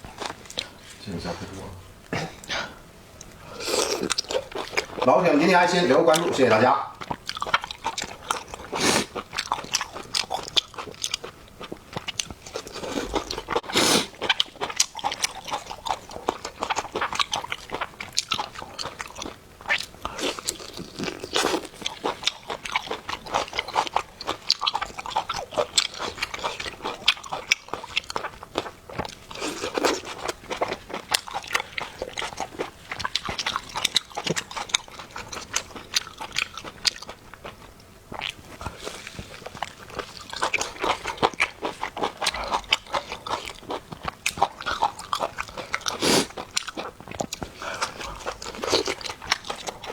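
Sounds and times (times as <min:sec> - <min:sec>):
person chewing crunchy food: 0:00.0 - 0:01.0, 0:03.2 - 0:49.9.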